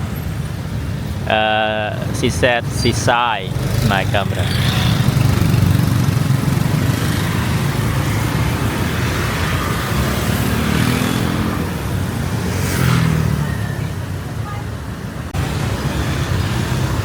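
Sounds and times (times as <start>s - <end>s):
car engines: 0.0s - 17.0s
motorbike engines: 0.0s - 17.0s
vehicle passing: 1.3s - 14.0s.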